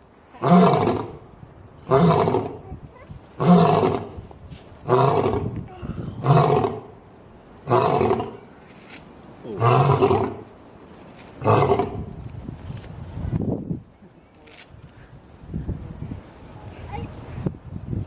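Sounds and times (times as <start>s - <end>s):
lion roaring: 3.4s - 4.2s, 4.8s - 5.6s, 6.2s - 6.9s, 7.7s - 8.4s, 9.5s - 10.4s.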